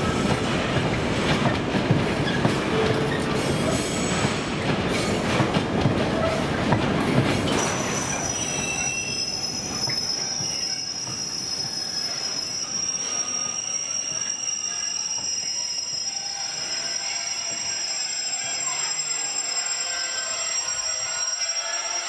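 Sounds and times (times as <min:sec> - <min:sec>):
rumble of wheels on track: 0:00.0 - 0:08.9
train wheels squealing: 0:00.0 - 0:22.0.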